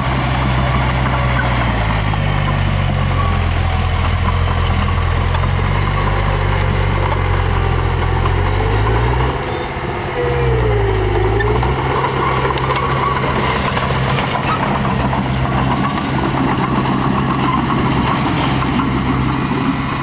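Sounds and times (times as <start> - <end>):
heavy diesel engine running: 0.0 - 20.0
faint falling squeal: 8.8 - 13.6.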